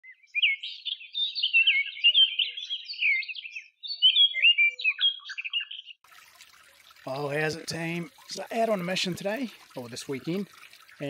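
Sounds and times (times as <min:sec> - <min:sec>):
songbird warbling: 0:00.0 - 0:06.0.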